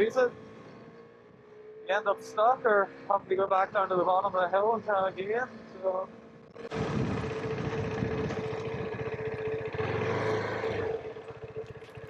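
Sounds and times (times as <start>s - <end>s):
motorcycle engine running: 0.0s - 12.0s
wind rush: 6.7s - 8.5s.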